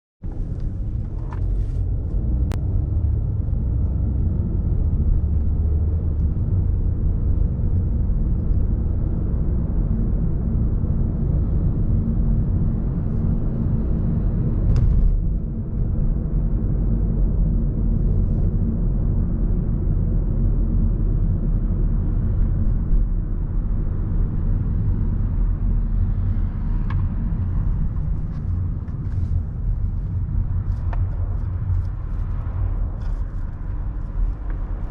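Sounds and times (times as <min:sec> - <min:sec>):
city street traffic rumble: 0:00.2 - 0:34.9.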